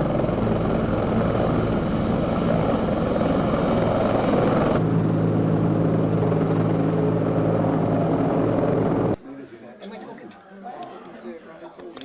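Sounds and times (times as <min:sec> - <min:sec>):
helicopter drone: 0:00.0 - 0:09.2
helicopter high whine: 0:00.0 - 0:09.2.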